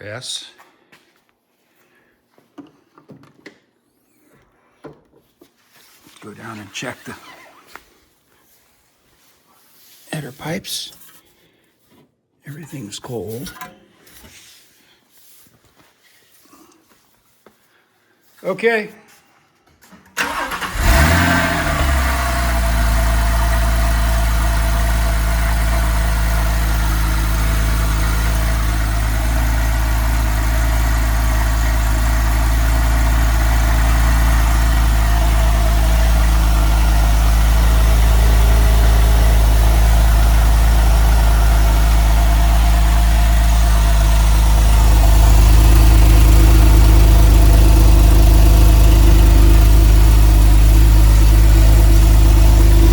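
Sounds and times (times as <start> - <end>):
car engine starting and idling: 20.1 - 52.9.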